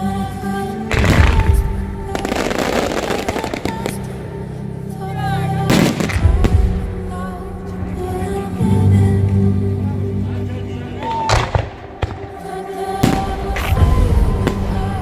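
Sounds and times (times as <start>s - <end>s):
music: 0.0s - 15.0s
firework crackling: 0.9s - 4.2s
fireworks bursting: 0.9s - 4.2s, 11.3s - 15.0s.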